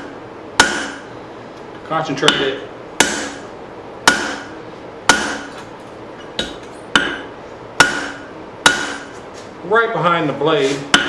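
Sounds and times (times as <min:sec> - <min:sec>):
hammer striking metal on anvil: 0:00.0 - 0:01.1, 0:02.2 - 0:05.6, 0:06.4 - 0:09.1.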